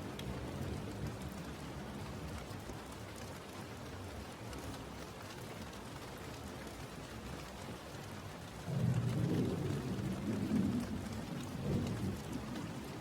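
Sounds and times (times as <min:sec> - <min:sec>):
steady rain: 0:00.0 - 0:13.0
thunder rolling: 0:08.7 - 0:13.0.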